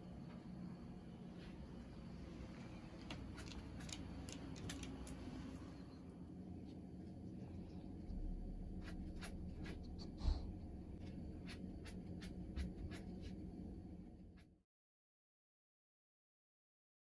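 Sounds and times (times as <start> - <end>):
light clicks and scratching: 3.0 - 5.2
low rumble: 7.4 - 14.4.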